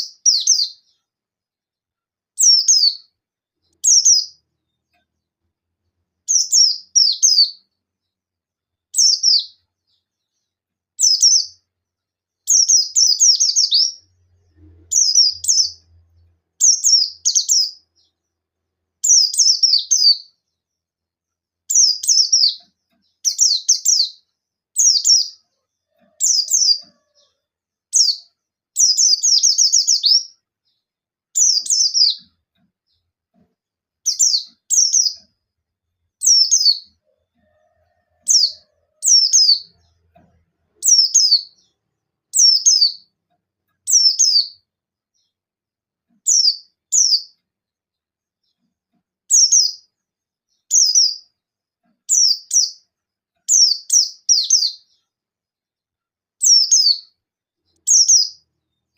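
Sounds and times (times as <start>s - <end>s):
bird singing high chirps: 0.0s - 1.1s, 2.4s - 4.8s, 6.3s - 7.7s, 8.9s - 10.4s, 11.0s - 11.7s, 12.4s - 18.3s, 19.0s - 20.6s, 21.7s - 33.0s, 34.0s - 35.3s, 36.2s - 40.0s, 40.8s - 43.1s, 43.8s - 45.3s, 46.2s - 47.4s, 49.3s - 49.9s, 50.5s - 51.3s, 52.1s - 52.8s, 53.5s - 55.1s, 56.4s - 58.9s.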